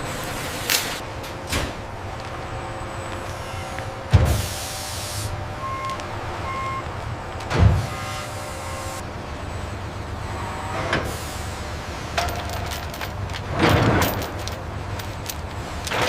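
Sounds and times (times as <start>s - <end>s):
industrial machinery humming: 0.0s - 16.0s
air hiss bursts: 4.3s - 5.4s.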